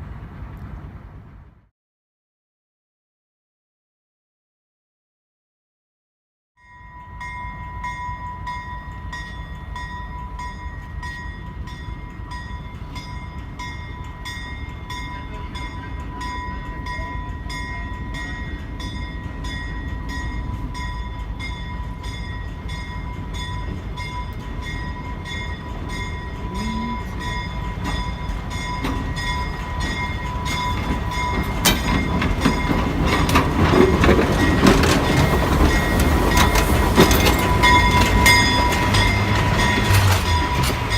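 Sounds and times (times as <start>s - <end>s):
steady pulsing ringing: 6.6s - 33.3s, 34.4s - 40.9s
diesel locomotive running: 7.1s - 40.9s
clanks and knocks of rolling equipment: 27.8s - 40.9s.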